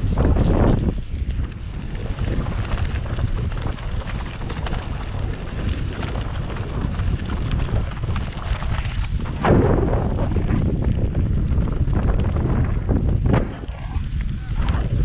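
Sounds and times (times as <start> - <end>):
bicycle frame rattling: 0.0 - 9.3
bicycle rolling over gravel: 0.0 - 15.0
wind rumble on microphone: 0.0 - 15.0.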